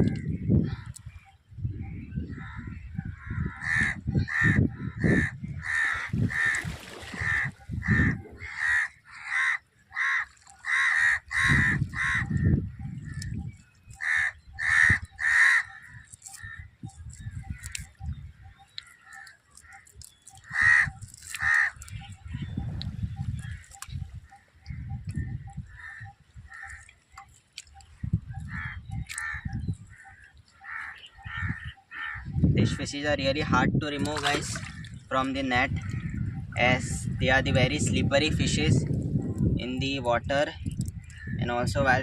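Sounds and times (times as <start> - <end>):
crows cawing: 2.4 - 12.6, 14.0 - 16.7, 18.8 - 21.8, 25.7 - 26.9, 28.4 - 32.4.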